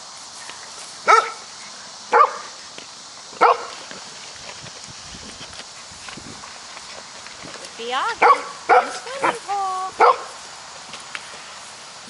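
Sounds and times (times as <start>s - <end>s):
puppy barking: 1.1s - 1.4s, 2.1s - 2.5s, 3.4s - 3.7s, 8.2s - 9.4s, 10.0s - 10.4s.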